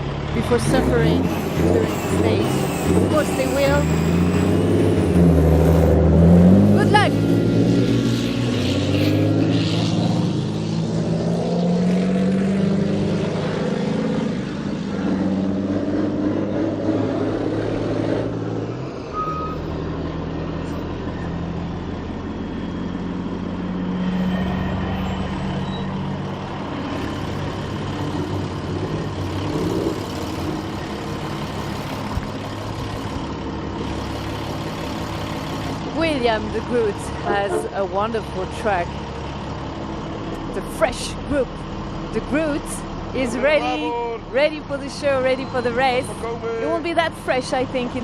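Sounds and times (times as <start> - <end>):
deep diesel truck engines: 0.0 - 48.0
short high beep: 19.1 - 19.8.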